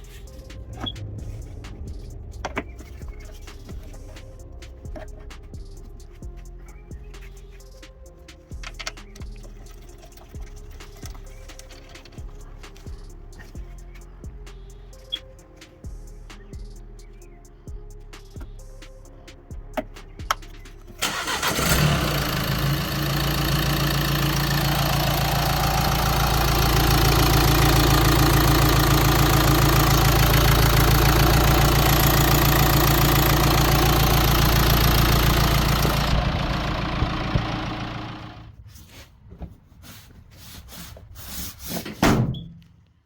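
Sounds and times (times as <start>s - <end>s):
diesel engine starting and idling: 0.0s - 6.1s, 20.9s - 38.6s.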